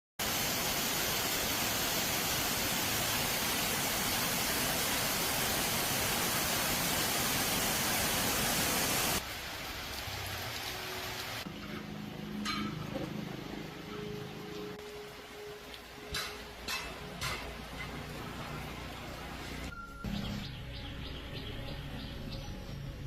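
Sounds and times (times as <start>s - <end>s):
loud steady hiss: 0.2s - 11.5s.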